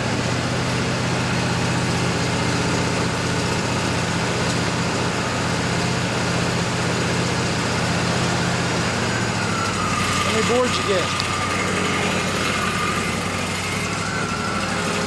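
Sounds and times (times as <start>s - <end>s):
sawmill engine humming: 0.0s - 15.0s.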